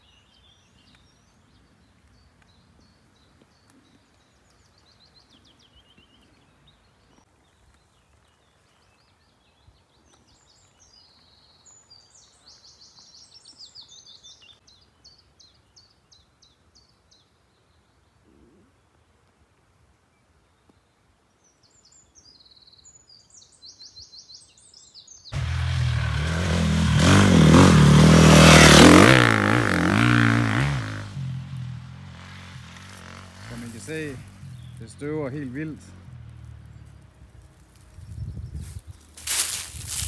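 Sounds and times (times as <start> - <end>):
songbirds singing: 0.0 - 19.1, 20.1 - 40.0.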